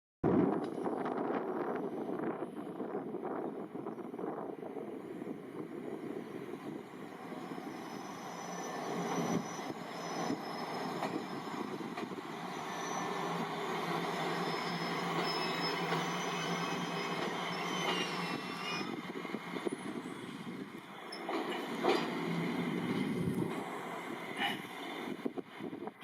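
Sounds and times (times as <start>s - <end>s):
train wheels on rails: 0.4s - 26.0s
wheel squeals: 7.3s - 22.8s.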